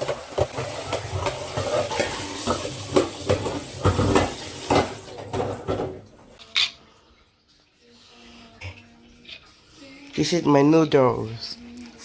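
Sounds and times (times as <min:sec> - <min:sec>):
utensils stirring noodles: 0:00.0 - 0:05.9
utensils clinking against bowl: 0:00.0 - 0:06.8.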